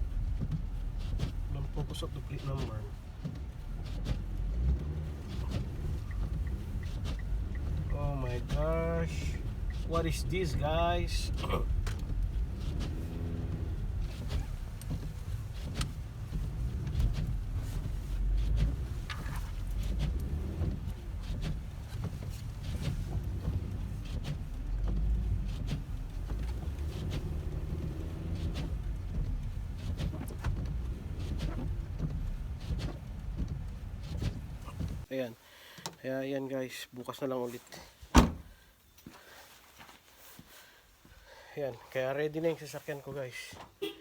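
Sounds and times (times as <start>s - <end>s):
car engine and tyres rumbling: 0.0s - 35.1s.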